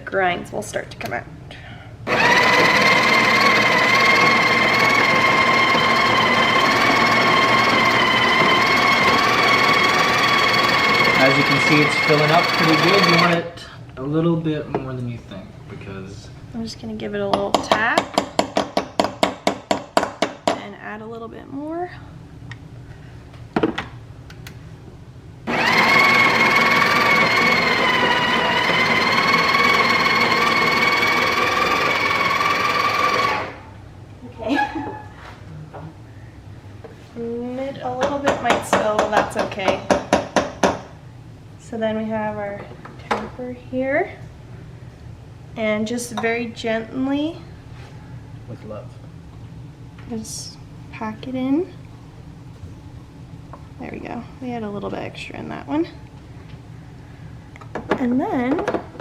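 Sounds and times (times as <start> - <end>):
coffee grinder motor whine: 2.1 - 13.4, 25.5 - 33.6.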